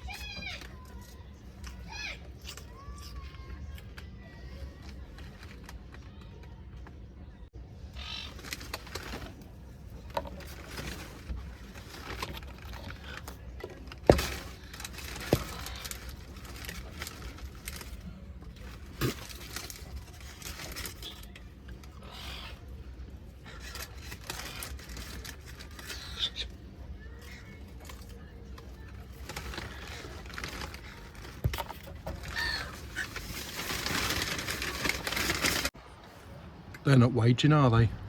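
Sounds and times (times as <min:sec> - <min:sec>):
seagulls calling: 0:31.5 - 0:33.4.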